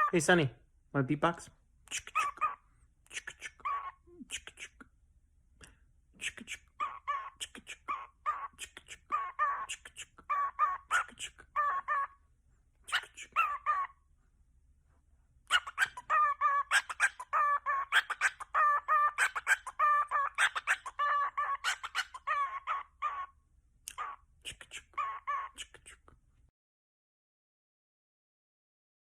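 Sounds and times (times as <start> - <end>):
parrot clucking calls: 0.0 - 0.4, 1.9 - 4.8, 6.2 - 14.1, 15.5 - 26.0.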